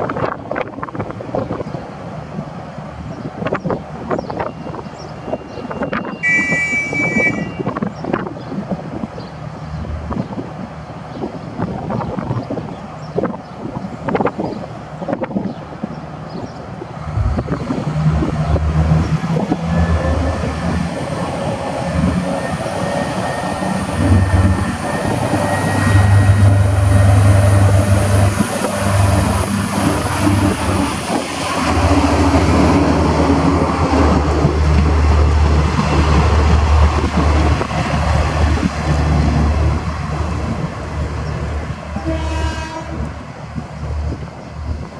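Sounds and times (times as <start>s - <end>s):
diesel train engine droning: 15.7s - 44.9s.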